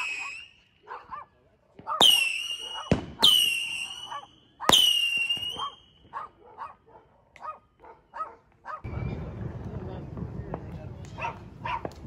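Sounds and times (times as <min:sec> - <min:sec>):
firework bangs with whistle: 0:00.0 - 0:00.6, 0:01.8 - 0:06.2
dog barking: 0:00.2 - 0:02.0, 0:02.6 - 0:02.9, 0:04.1 - 0:04.8, 0:05.6 - 0:08.9, 0:11.2 - 0:11.9.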